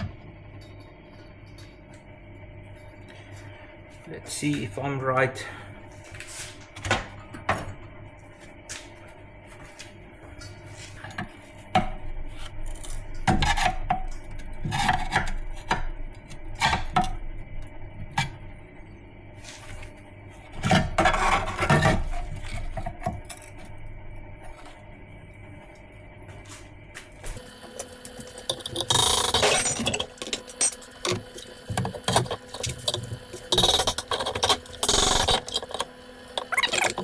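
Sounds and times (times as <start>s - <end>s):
hand tools clanking on metal: 27.4s - 37.0s.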